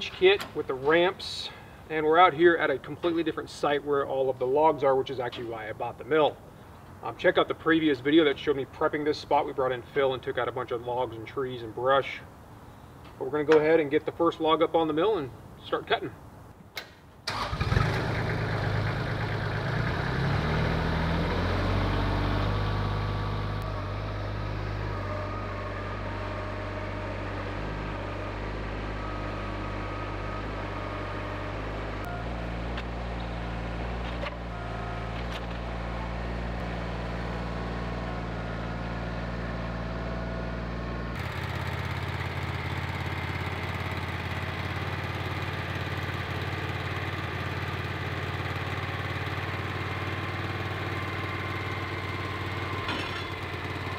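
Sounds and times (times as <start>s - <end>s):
sawmill gasoline engine running: 17.3s - 53.9s.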